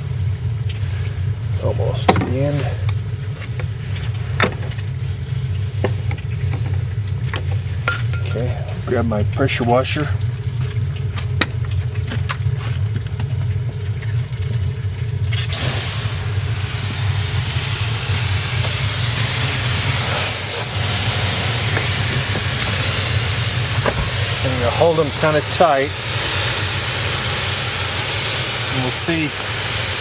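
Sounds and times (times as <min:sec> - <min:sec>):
pressure washer humming: 0:00.0 - 0:12.4, 0:14.4 - 0:30.0
water jet spraying with a hiss: 0:15.4 - 0:30.0.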